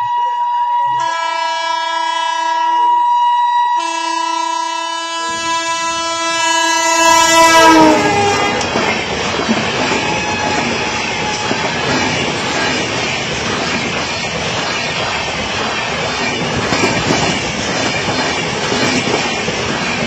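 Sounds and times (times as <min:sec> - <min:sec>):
locomotive horn blast: 0:00.0 - 0:03.1, 0:03.7 - 0:08.8, 0:10.0 - 0:11.6
train coaches rushing past: 0:05.2 - 0:20.0.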